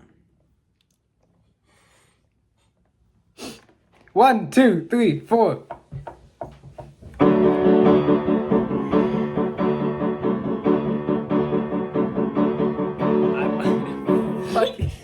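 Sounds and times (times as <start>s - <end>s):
keyboard playing sustained chords: 7.2s - 14.8s.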